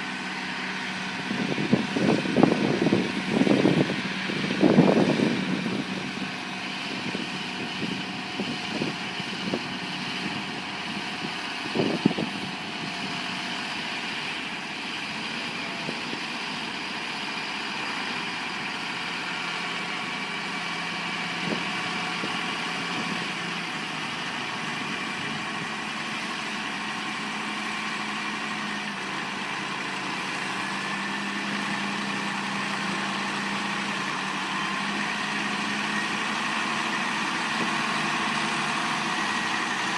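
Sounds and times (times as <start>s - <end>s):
heavy vehicle engine running: 0.0s - 39.9s.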